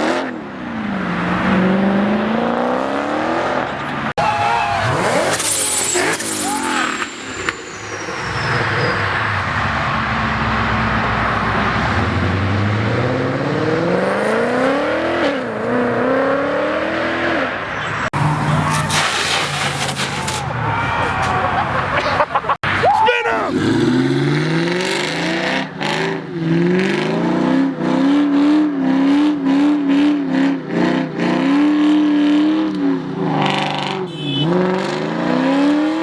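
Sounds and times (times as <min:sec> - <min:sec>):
car engines revving: 0:00.0 - 0:22.5, 0:23.5 - 0:36.0.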